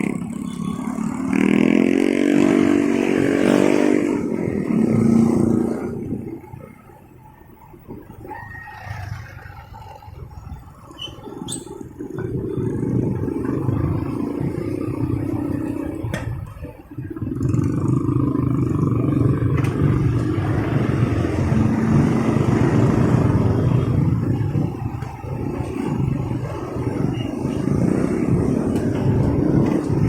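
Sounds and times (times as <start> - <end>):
surrounding traffic: 0.0 - 30.0
wind: 0.0 - 30.0
motorcycle engine running: 12.1 - 30.0.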